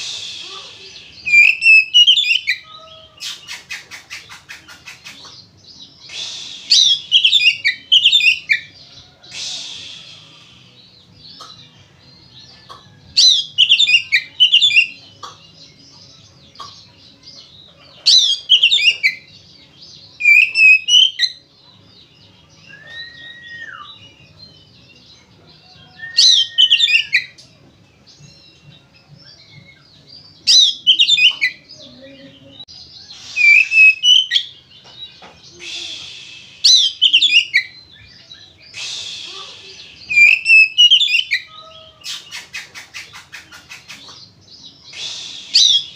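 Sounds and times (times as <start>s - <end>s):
drawn-out bird whistles: 0.0s - 2.6s, 20.2s - 21.4s, 25.8s - 27.4s, 33.1s - 34.6s, 38.7s - 44.0s, 44.9s - 45.9s
bird harsh rasping notes: 0.0s - 12.0s, 33.0s - 45.9s
songbird whistling song: 0.0s - 45.9s.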